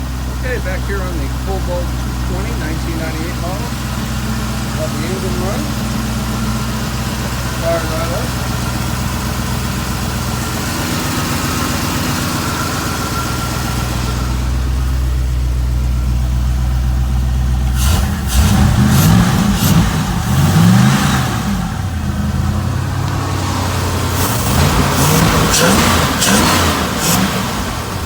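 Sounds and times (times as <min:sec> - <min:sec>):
boat engine idling and revving: 0:00.0 - 0:28.0.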